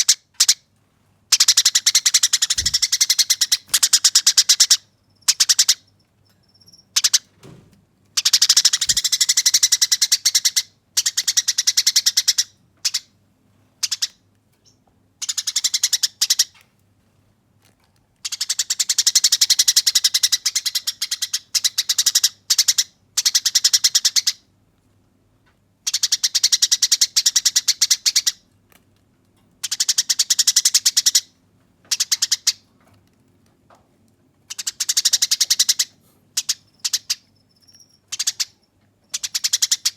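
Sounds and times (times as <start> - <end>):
sparrow harsh rolling chatter: 1.4 - 5.7, 8.2 - 10.6.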